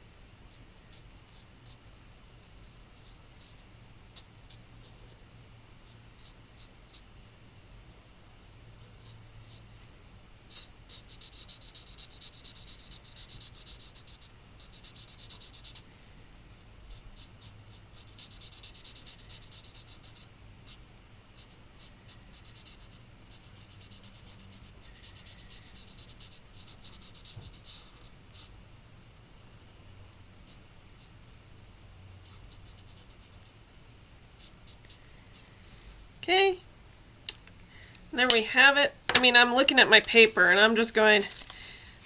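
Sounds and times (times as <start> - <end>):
marker scratching on cardstock: 0.5 - 1.8, 2.4 - 5.2, 5.8 - 7.0, 7.9 - 9.6, 10.5 - 15.8, 16.9 - 20.8, 21.4 - 28.5, 29.7 - 33.6, 34.4 - 35.5.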